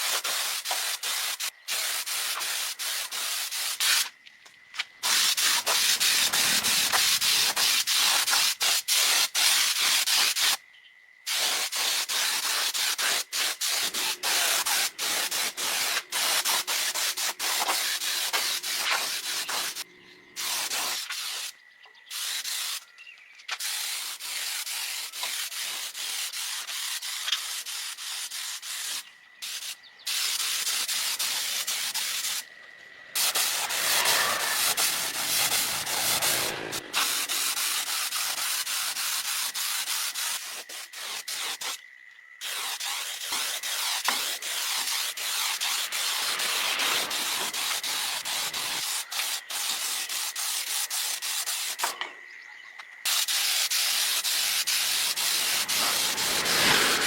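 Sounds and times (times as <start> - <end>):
power sander sanding: 33.2 - 37.4, 45.6 - 48.8, 54.8 - 57.0.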